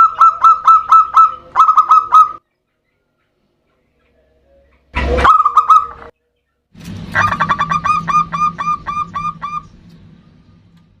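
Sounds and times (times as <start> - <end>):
dove cooing: 0.0 - 2.4, 7.2 - 9.7
steady low hum: 0.4 - 11.0.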